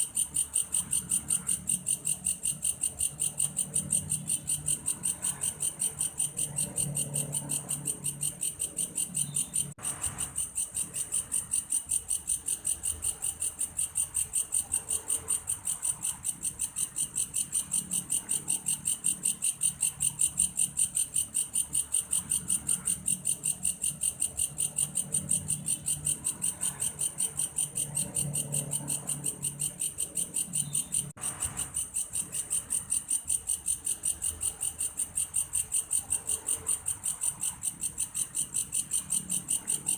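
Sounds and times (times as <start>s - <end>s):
grasshopper chirring: 0.0s - 39.9s.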